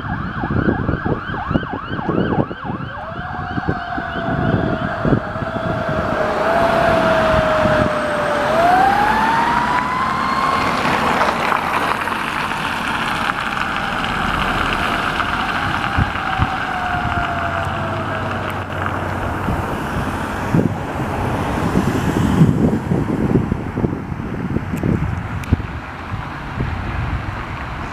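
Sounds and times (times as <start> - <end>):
emergency vehicle siren wailing: 0.0 - 27.2
road and engine noise: 0.0 - 27.9.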